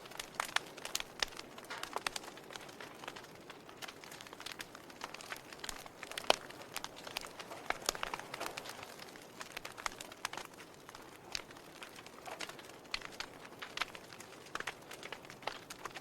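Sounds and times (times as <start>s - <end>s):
log fire crackling: 0.0s - 16.0s.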